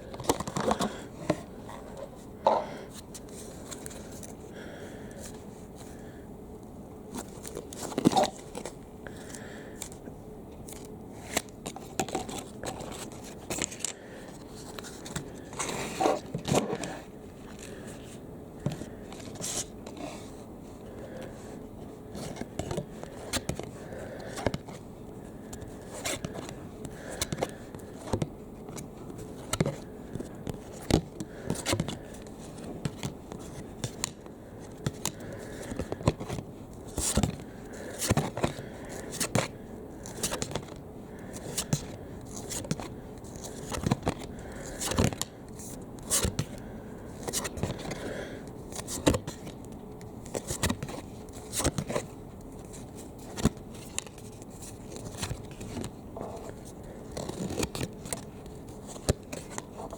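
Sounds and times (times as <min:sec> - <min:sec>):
trading cards clicking and scraping: 0:25.4 - 0:49.6.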